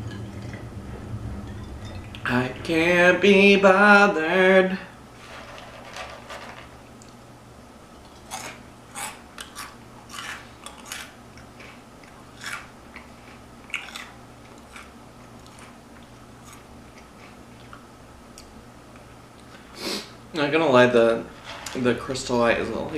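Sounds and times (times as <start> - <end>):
faint steady hum: 0.0 - 22.9
chips crunching and chewing: 8.0 - 17.8.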